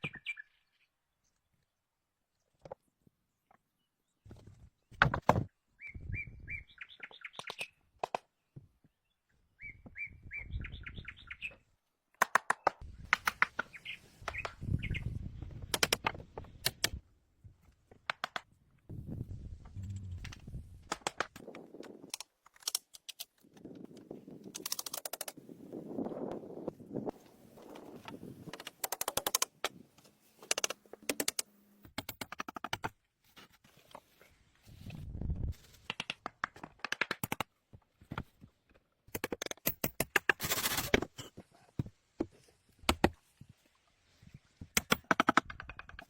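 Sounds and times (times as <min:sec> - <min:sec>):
bird chirps: 0:00.0 - 0:00.9, 0:05.8 - 0:07.8, 0:09.6 - 0:11.6.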